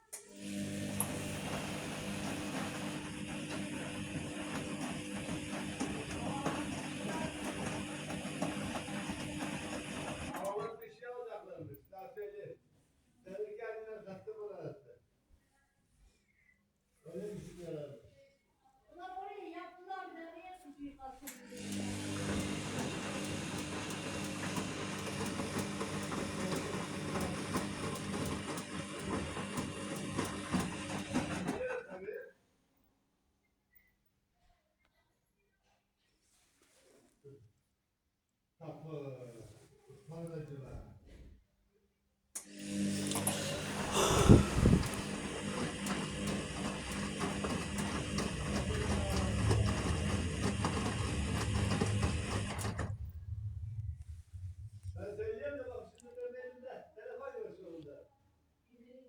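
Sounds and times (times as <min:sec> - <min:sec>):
washing machine motor hum: 0:00.2 - 0:10.6, 0:21.5 - 0:31.8, 0:42.4 - 0:55.9.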